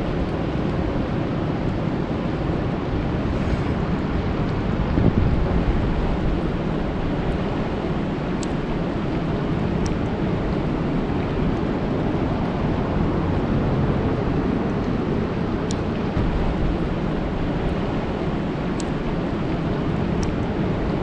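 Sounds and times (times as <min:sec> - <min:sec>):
faint drop ticks: 0:18.8 - 0:19.0.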